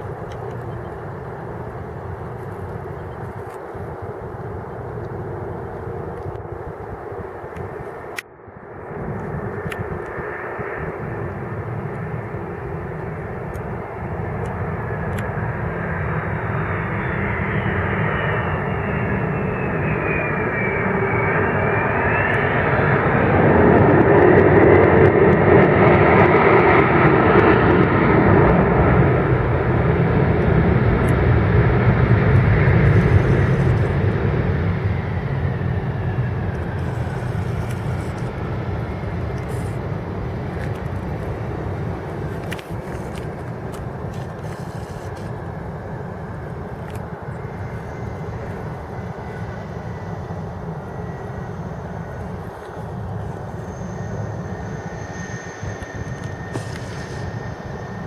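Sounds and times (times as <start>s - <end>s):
jet engines roaring: 0.0s - 58.0s
sliding whining tone: 28.4s - 58.0s.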